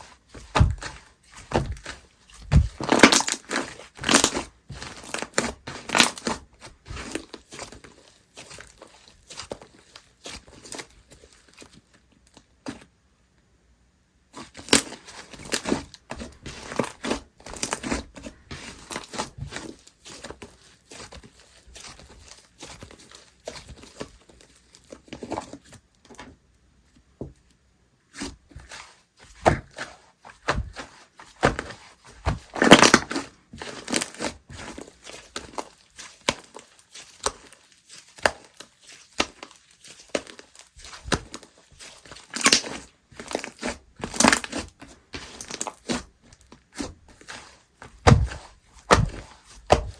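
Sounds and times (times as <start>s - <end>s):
sticky slime crackles and pops: 2.5s - 4.4s, 32.2s - 44.7s.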